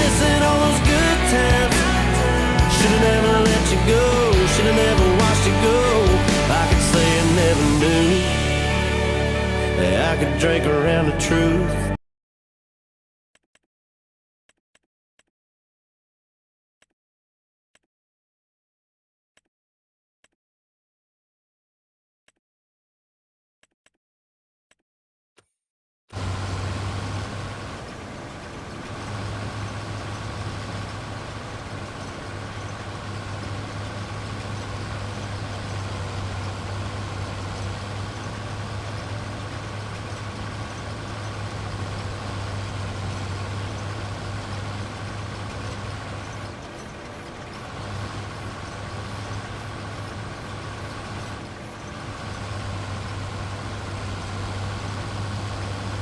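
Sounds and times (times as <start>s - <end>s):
farm machinery engine running: 0.0s - 11.7s, 26.2s - 56.0s.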